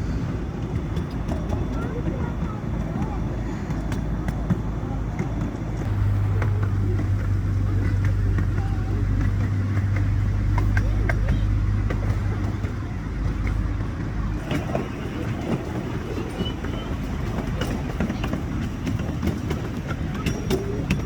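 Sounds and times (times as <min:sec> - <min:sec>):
deep steady hum: 0:00.0 - 0:21.0
miniature train rumbling on track: 0:00.0 - 0:21.0
wheels clicking on rails: 0:00.0 - 0:21.0.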